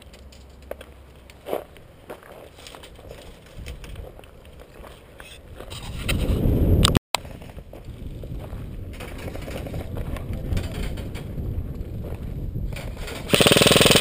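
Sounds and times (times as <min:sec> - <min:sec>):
airsoft rifle full auto shots: 0:13.3 - 0:14.0.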